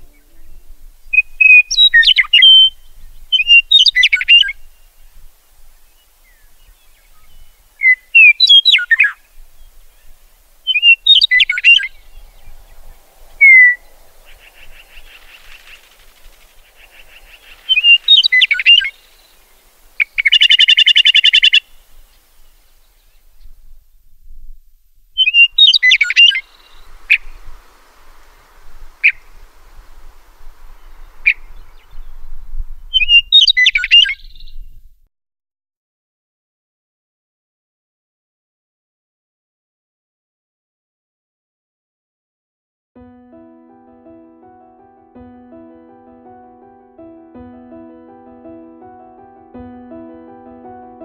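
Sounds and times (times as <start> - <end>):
small bird chirping: 0.0 - 24.1, 25.2 - 34.8
harsh buzzing bird rattle: 14.4 - 18.6.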